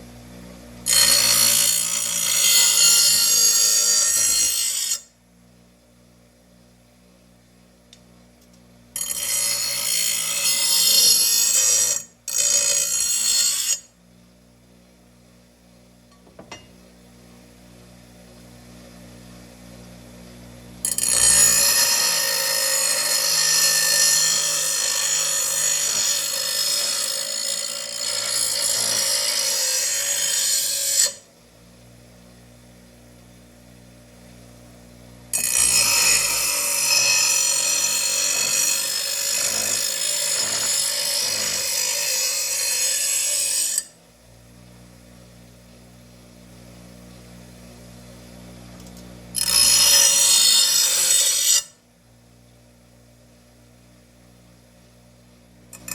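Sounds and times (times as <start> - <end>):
power grinder grinding metal blade: 0.8 - 5.1, 9.0 - 13.9, 20.8 - 31.3, 35.3 - 44.0, 49.3 - 51.8.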